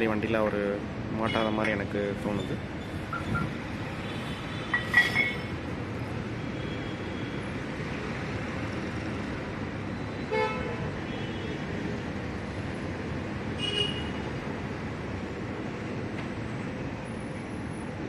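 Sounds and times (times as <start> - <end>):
background traffic noise: 0.0 - 18.0.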